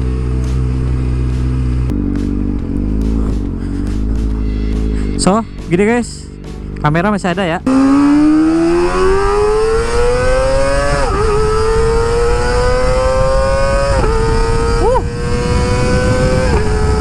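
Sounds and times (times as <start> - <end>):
motorcycle engine revving high: 0.0 - 17.0
wind rush: 8.1 - 17.0.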